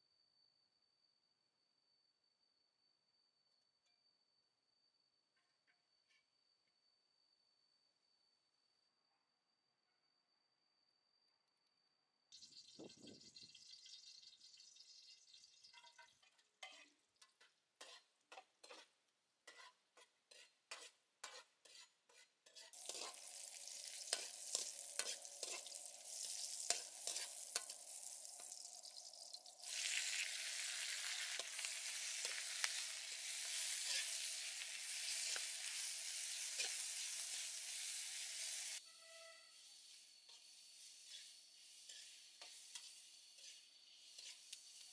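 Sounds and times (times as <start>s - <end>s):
carrots sizzling in wok: 14.9s - 44.9s
spatula scraping and clicking on pan: 15.7s - 38.8s, 40.2s - 44.9s.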